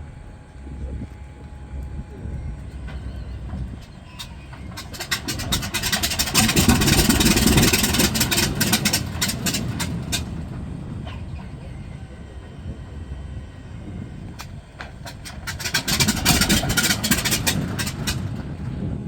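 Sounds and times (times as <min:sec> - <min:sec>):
radial aircraft engine running: 0:00.0 - 0:19.0
engine crackle of pops: 0:00.3 - 0:13.3, 0:14.1 - 0:19.0.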